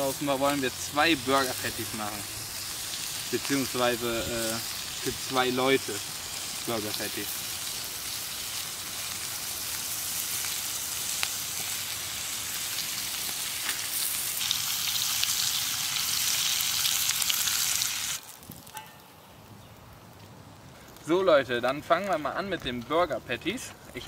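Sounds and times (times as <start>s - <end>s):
bacon sizzling in a pan: 0.0s - 18.8s.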